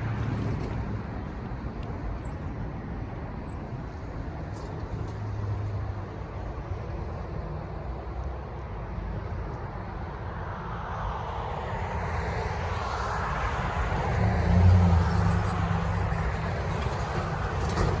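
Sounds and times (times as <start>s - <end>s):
vehicle passing by: 11.0s - 18.0s.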